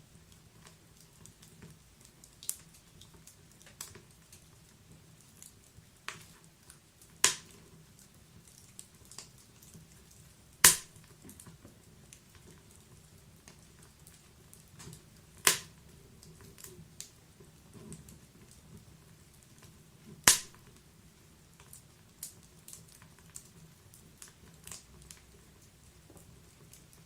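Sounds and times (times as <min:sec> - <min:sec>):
wood fire crackling: 0:00.0 - 0:27.0
loud sharp pops of fire: 0:07.2 - 0:07.6, 0:10.6 - 0:11.3, 0:14.8 - 0:15.8, 0:20.1 - 0:20.8.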